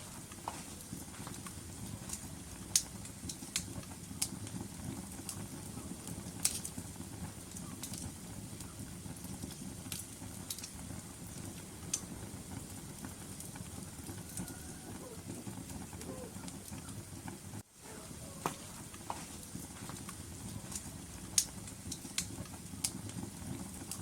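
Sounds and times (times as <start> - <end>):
low rush of flames: 0.0 - 24.0
wood crackling and popping: 0.0 - 24.0.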